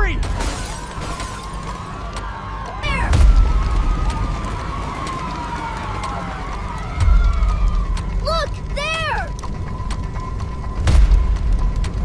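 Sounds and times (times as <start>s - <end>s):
emergency sirens wailing: 0.0s - 11.0s
deep boom: 2.9s - 4.7s.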